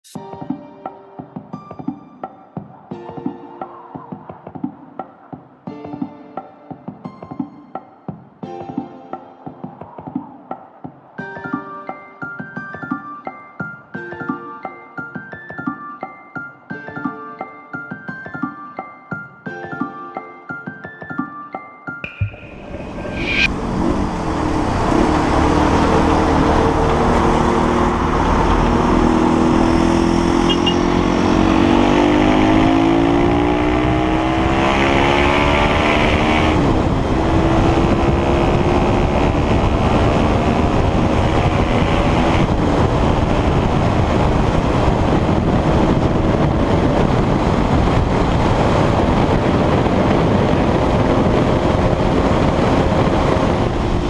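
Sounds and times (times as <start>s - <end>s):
loud rushing noise: 22.0s - 54.0s
motorcycle engine accelerating: 22.2s - 54.0s.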